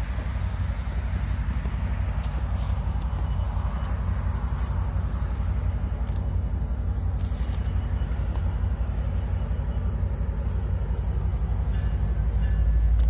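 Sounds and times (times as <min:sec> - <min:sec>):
diesel locomotive rumbling: 0:00.0 - 0:13.0
faint high ringing tone: 0:02.6 - 0:13.0.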